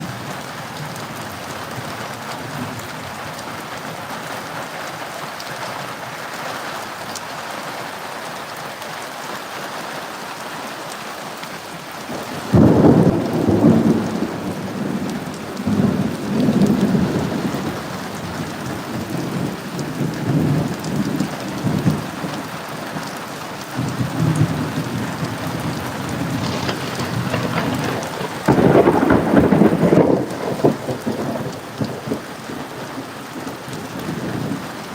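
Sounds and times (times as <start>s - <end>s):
steady rain: 0.0s - 34.9s
thunder rumbling: 12.1s - 22.5s, 23.8s - 34.9s.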